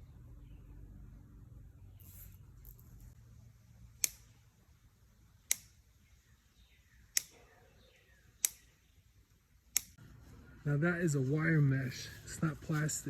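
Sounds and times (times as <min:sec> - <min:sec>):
cutters clicking: 0:03.9 - 0:04.4, 0:05.4 - 0:05.9, 0:07.1 - 0:07.4, 0:08.3 - 0:10.0.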